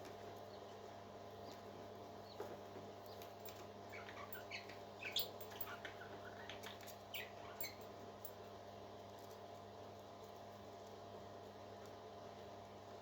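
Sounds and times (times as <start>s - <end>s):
parrot chick peeping: 3.9s - 7.8s.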